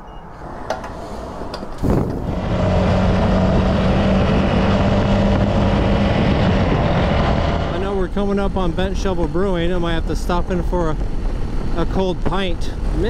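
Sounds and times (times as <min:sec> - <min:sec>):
wind noise: 0:00.0 - 0:13.0
motorcycle engine running: 0:01.8 - 0:09.7.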